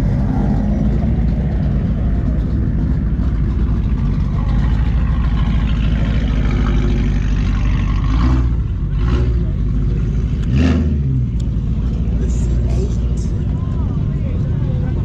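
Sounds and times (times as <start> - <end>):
car engines idling: 0.0 - 15.0.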